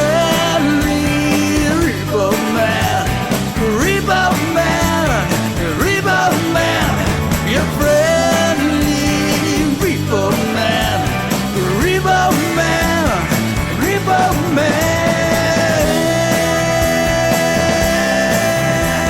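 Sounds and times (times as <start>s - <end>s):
instrumental rock song: 0.0s - 19.0s.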